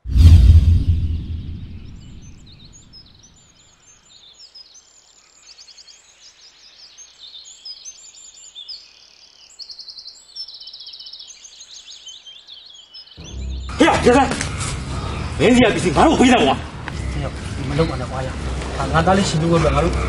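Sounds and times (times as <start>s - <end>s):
deep boom: 0.0s - 2.9s
birds chirping and trilling: 0.0s - 20.0s.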